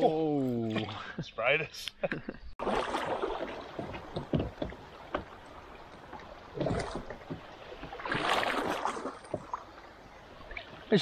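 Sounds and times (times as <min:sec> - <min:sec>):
water sloshing around kayak: 0:02.6 - 0:11.0.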